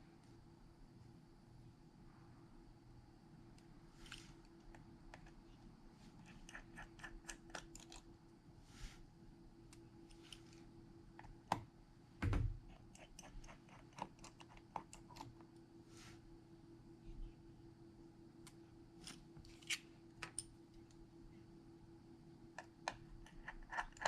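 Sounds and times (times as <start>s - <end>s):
faint steady hum: 0.0s - 24.0s
small tools clicking and tapping: 22.6s - 24.0s.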